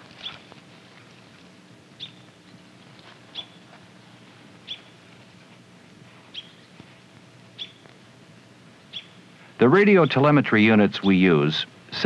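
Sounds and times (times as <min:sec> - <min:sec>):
faint low hum: 0:00.0 - 0:12.0
bird chirping: 0:00.2 - 0:00.5, 0:02.0 - 0:02.4, 0:03.3 - 0:03.7, 0:04.6 - 0:05.0, 0:06.3 - 0:06.8, 0:07.5 - 0:07.9, 0:08.9 - 0:09.2.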